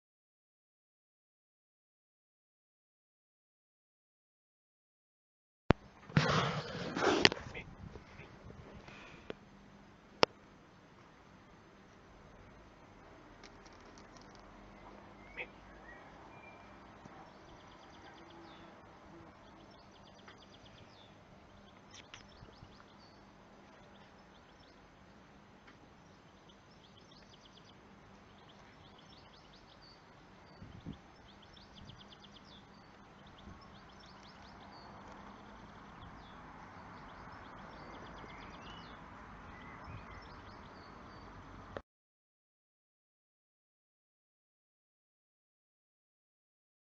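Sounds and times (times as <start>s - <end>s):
small birds chirping and trilling: 12.3s - 41.6s.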